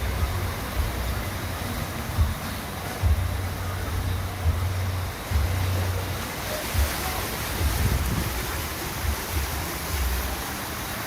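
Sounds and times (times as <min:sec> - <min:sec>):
floodwater rushing: 0:00.0 - 0:11.0
wind buffeting microphone: 0:06.5 - 0:10.3.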